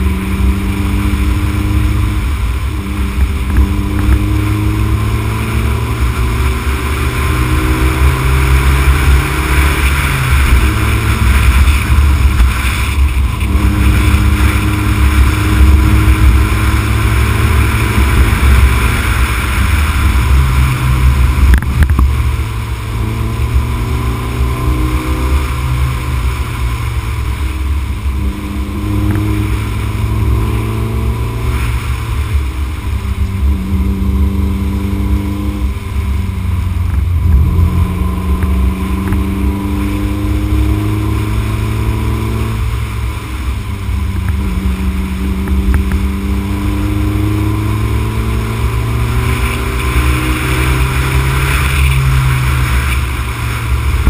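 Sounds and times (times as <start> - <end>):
car engine revving under load: 0.0 - 54.0
wind and road noise: 0.0 - 54.0.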